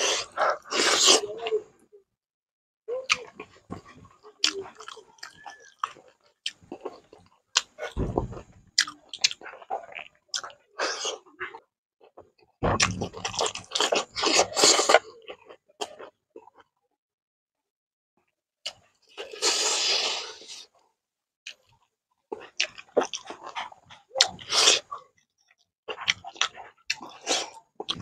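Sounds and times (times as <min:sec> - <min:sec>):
wet chewing and lip smacks: 0:03.0 - 0:10.6, 0:21.5 - 0:28.0.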